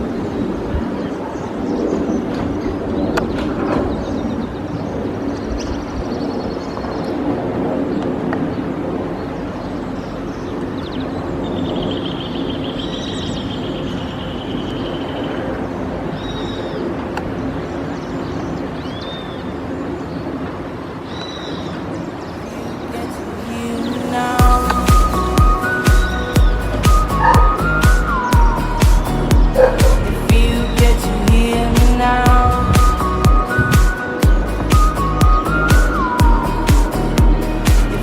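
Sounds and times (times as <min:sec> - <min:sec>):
birds chirping: 0:00.0 - 0:38.0
bird trill: 0:23.8 - 0:38.0
low outdoor rumble: 0:24.4 - 0:38.0.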